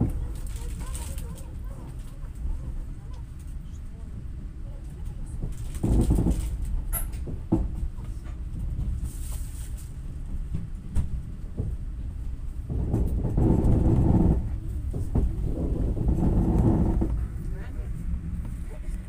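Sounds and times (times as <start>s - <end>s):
train carriage rumble: 0.0s - 19.0s
wheels clacking over rail joints: 5.4s - 9.0s, 12.6s - 17.6s.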